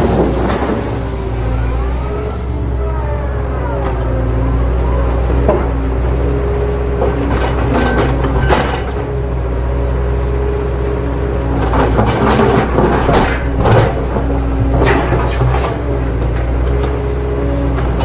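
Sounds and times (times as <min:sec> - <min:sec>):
motor humming: 0:12.4 - 0:18.0.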